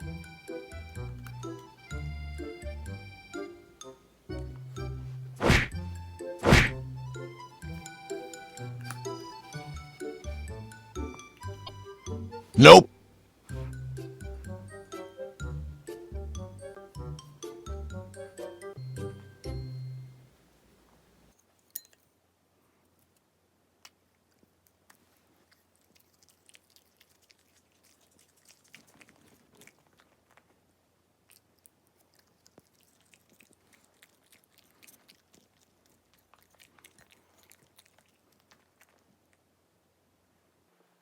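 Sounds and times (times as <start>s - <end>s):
dog chewing crunchy food: 24.2s - 39.5s.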